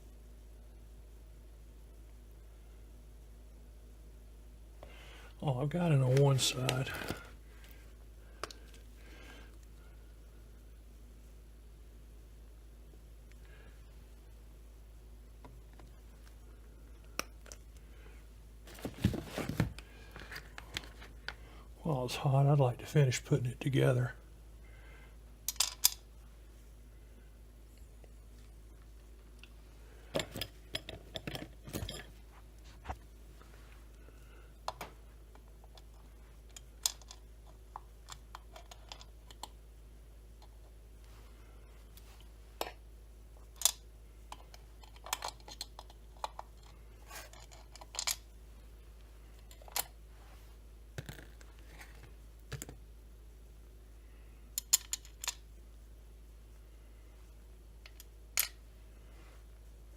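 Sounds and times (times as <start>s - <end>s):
metal parts clicking and clinking: 25.5s - 26.0s, 36.5s - 37.2s, 38.1s - 39.5s, 43.6s - 48.2s, 49.4s - 49.9s, 54.6s - 55.4s, 57.8s - 58.6s.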